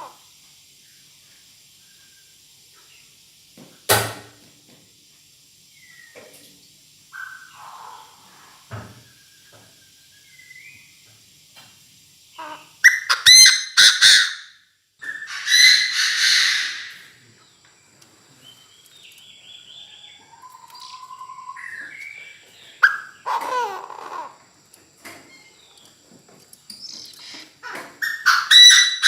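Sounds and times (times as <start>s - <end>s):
francolin harsh calls: 5.6s - 6.2s, 7.1s - 11.0s, 12.2s - 17.6s, 18.3s - 26.0s, 26.7s - 29.0s
soft whistled bird notes: 5.7s - 6.2s, 9.0s - 11.0s, 18.4s - 23.2s.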